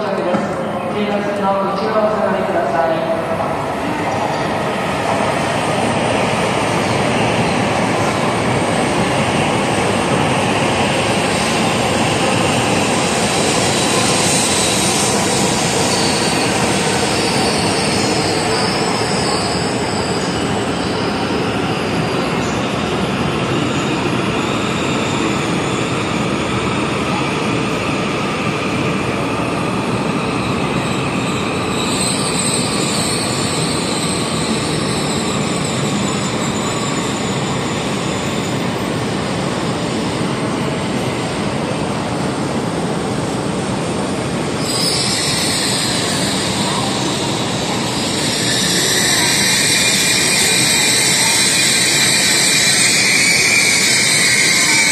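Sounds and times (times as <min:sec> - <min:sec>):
train brake squeal: 0:13.3 - 0:22.6, 0:30.3 - 0:39.1, 0:44.6 - 0:54.9.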